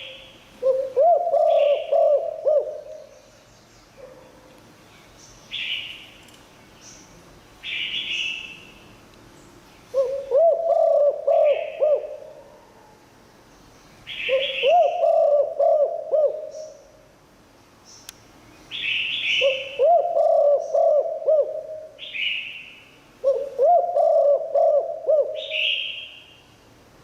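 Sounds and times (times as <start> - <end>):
dove cooing: 0.0 - 3.1, 9.9 - 13.0, 14.2 - 16.9, 19.4 - 22.1, 23.2 - 26.0.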